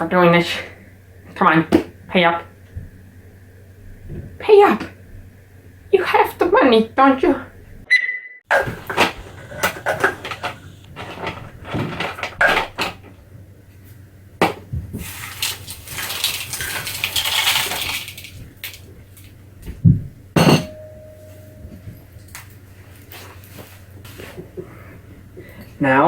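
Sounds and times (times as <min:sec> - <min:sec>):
steady hiss: 0:08.6 - 0:11.6
ice and kitchenware clattering: 0:15.0 - 0:18.4, 0:20.4 - 0:21.0.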